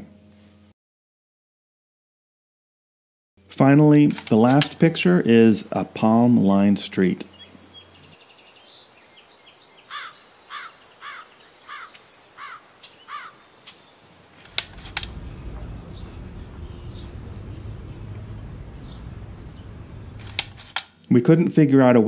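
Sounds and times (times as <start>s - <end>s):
bird chirps sweeping downward: 7.3s - 20.6s
low outdoor rumble: 14.0s - 21.3s
click: 14.4s - 15.1s.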